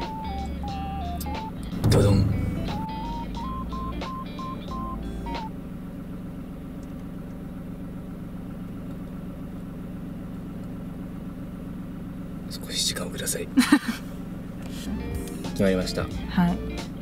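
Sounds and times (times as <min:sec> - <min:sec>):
electronic beeping: 0:00.0 - 0:05.5
car engine idling: 0:00.0 - 0:17.0.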